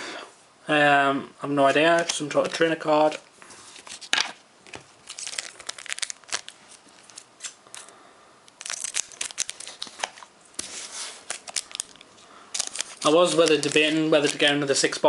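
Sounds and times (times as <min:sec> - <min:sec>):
foil wrapper crinkling and tearing: 0:05.0 - 0:07.9, 0:08.5 - 0:14.5.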